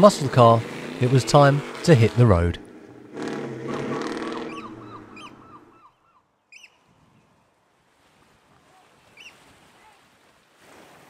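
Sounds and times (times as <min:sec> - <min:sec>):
car engine pulling away: 0:00.0 - 0:05.8
water noise: 0:00.0 - 0:05.8
birds calling: 0:00.0 - 0:06.9, 0:09.1 - 0:09.4
faint wind: 0:00.0 - 0:11.0.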